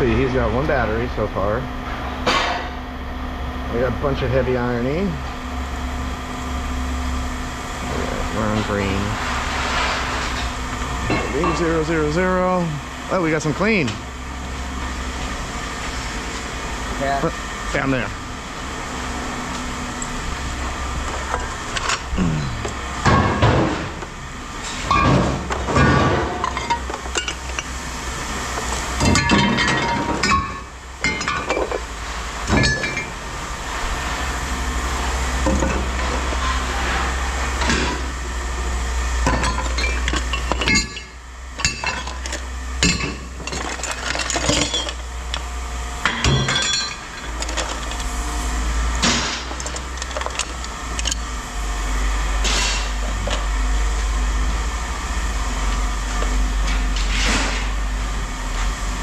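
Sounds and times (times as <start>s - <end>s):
low hum: 0.0s - 59.0s
scrap metal clanking: 39.2s - 45.4s, 46.0s - 48.1s, 52.4s - 53.4s.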